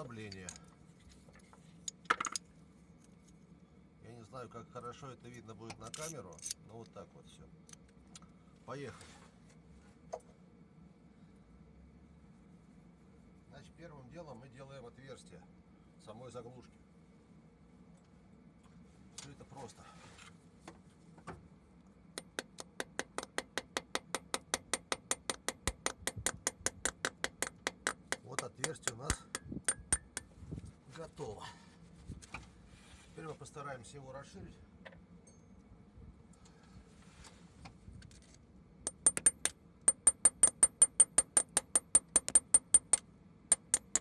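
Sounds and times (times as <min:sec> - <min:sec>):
hammer tapping metal: 0:22.2 - 0:30.3, 0:38.9 - 0:44.0.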